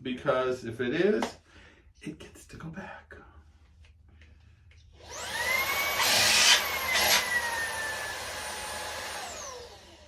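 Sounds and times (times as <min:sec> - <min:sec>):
hand vacuum motor whining: 0:05.0 - 0:10.0.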